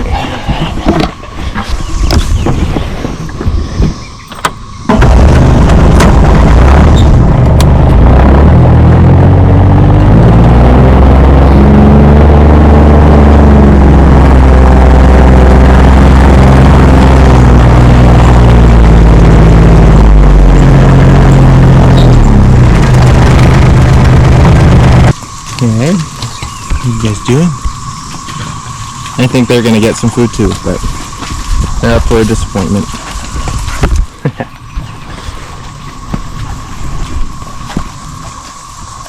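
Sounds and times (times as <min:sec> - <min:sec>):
vehicle engine revving: 0:04.9 - 0:33.7.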